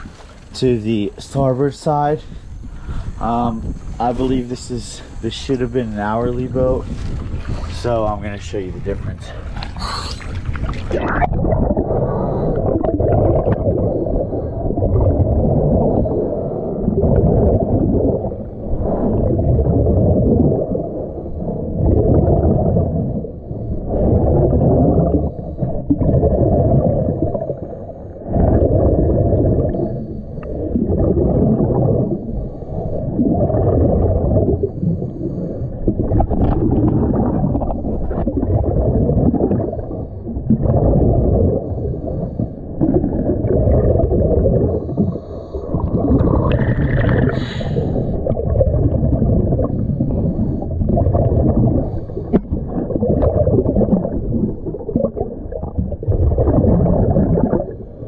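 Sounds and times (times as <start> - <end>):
exhaled bubbles rumbling: 0.0 - 58.0
diver breathing through regulator: 1.3 - 7.8, 9.3 - 10.6, 12.0 - 12.8, 13.7 - 14.8, 29.7 - 30.8, 34.5 - 36.0, 41.5 - 43.4, 44.6 - 48.4, 49.6 - 51.0, 51.6 - 52.7.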